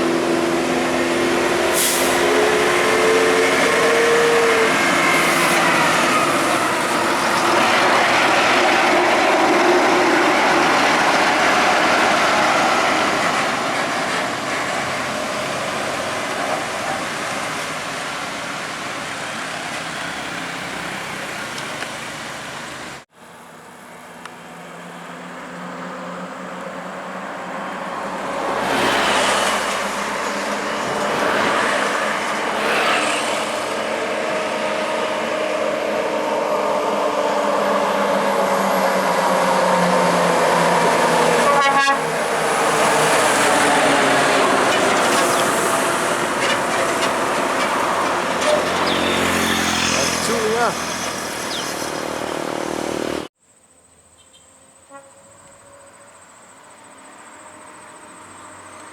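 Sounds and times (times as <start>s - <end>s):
heavy trucks driving past: 0.0s - 53.4s.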